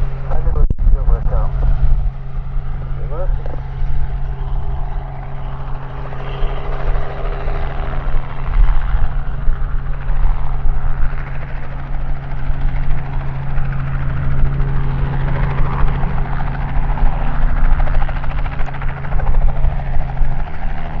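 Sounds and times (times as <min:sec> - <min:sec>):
helicopter engine and rotor drone: 0:00.0 - 0:21.0.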